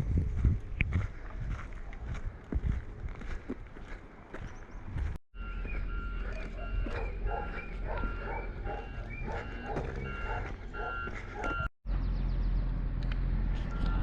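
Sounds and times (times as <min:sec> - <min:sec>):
steady low rumble: 0:00.0 - 0:14.0
short electronic beeps: 0:05.4 - 0:11.7, 0:13.7 - 0:14.0.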